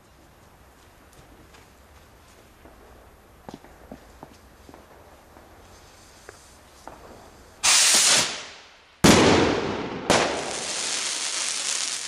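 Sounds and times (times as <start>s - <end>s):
trailing hiss: 4.0s - 9.1s, 9.7s - 12.0s
rocket launching hiss: 5.8s - 12.0s
sharp firework bangs: 6.9s - 12.0s.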